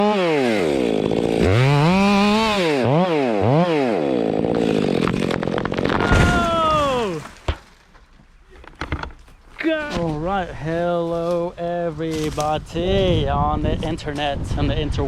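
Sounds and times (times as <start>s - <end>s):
chainsaw engine revving: 0.0s - 6.1s.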